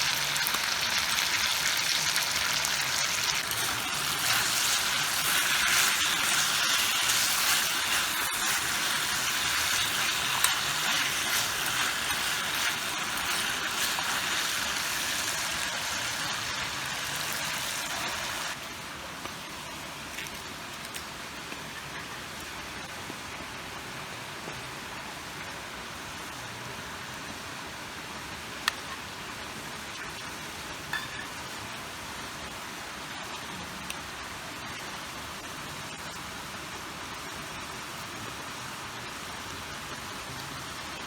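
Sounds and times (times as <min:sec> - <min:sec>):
water hissing: 0:03.2 - 0:18.6.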